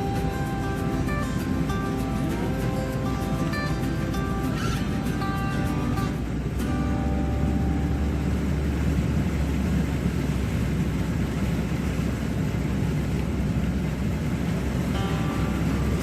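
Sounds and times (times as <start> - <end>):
road noise: 0.0 - 16.0
van engine: 0.0 - 16.0.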